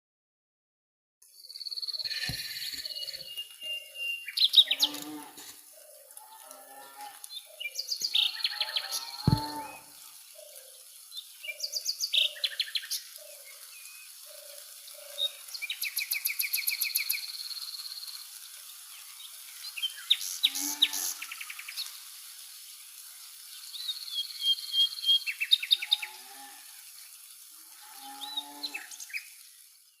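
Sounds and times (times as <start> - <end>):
birds chirping and trilling: 1.4 - 17.9, 19.2 - 21.9, 27.8 - 29.3.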